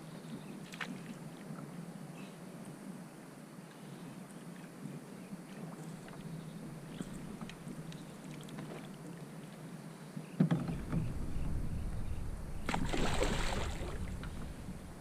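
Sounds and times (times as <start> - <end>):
low rumbling handling noise: 6.6 - 8.1, 10.4 - 15.0
knock on kayak hull: 10.4 - 11.6
water splashing: 10.7 - 15.0.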